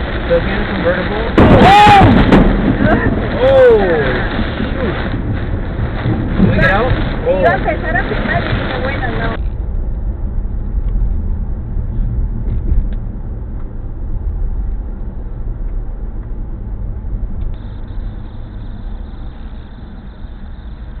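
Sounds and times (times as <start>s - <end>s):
low rumble inside a car: 0.0s - 21.0s.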